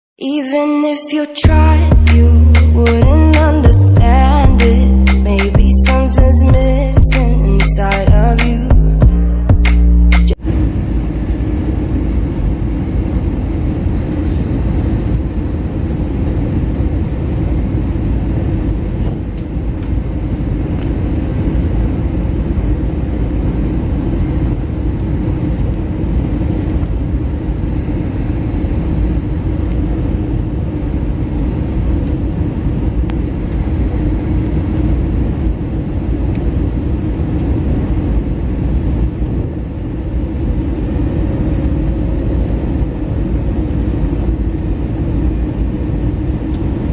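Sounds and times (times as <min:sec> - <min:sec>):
aircraft engine rumble in cabin: 0:10.3 - 0:46.9.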